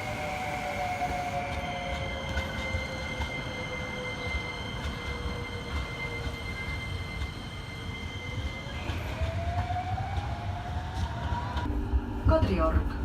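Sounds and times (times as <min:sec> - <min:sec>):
high wheel squeal: 0:00.0 - 0:09.2
tram motor whine: 0:00.0 - 0:12.4
low rumble of tram: 0:00.0 - 0:13.0.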